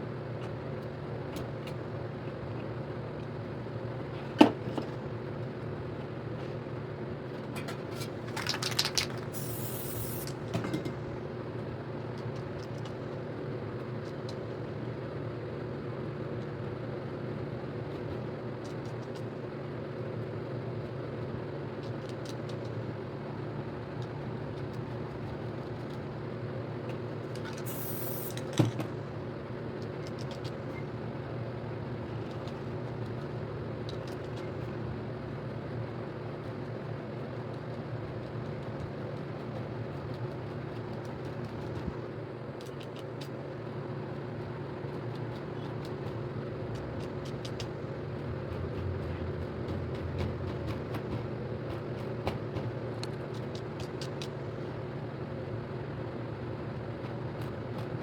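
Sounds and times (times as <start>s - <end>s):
steady low hum: 0.0s - 58.0s
aerosol spray can hissing: 9.4s - 10.4s, 27.6s - 28.4s.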